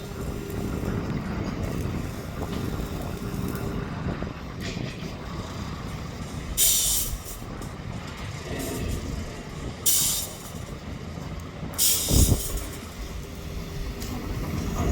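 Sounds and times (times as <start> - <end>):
heavy road traffic rumble: 0.0 - 14.9
loud hiss: 6.6 - 7.5, 9.8 - 10.8, 11.7 - 13.9.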